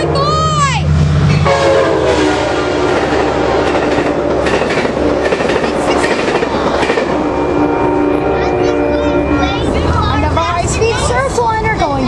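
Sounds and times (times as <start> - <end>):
train horn: 0.0 - 4.3, 5.9 - 9.8
train wheels rumbling over rails: 0.0 - 12.0.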